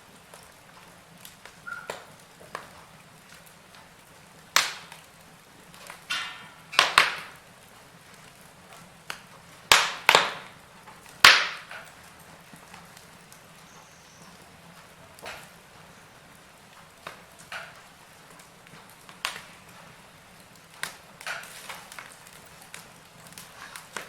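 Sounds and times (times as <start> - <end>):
wood fire crackling: 0.0 - 24.0
sharp pops and snaps: 0.2 - 24.0.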